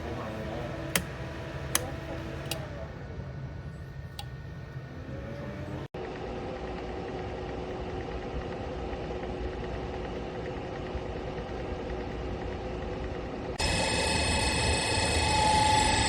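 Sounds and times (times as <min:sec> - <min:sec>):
heater fan whirring: 0:00.0 - 0:05.9.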